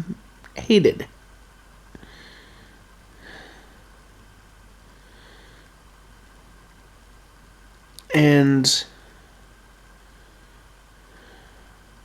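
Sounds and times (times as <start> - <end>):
soft breaths: 1.9 - 6.4, 8.9 - 12.0.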